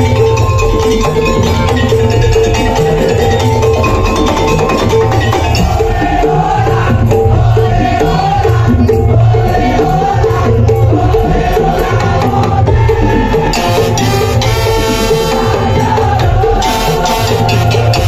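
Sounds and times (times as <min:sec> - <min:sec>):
wavering melody line: 0:00.0 - 0:06.1, 0:16.5 - 0:18.0
drums and wooden percussion: 0:00.0 - 0:18.0.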